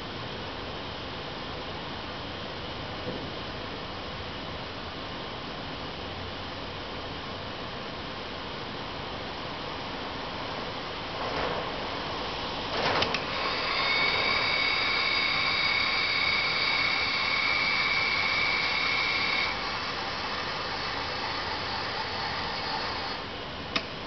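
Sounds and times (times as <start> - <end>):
steady hiss: 7.9 - 24.0
electric motor whine: 13.3 - 23.3
clicks: 23.7 - 24.0.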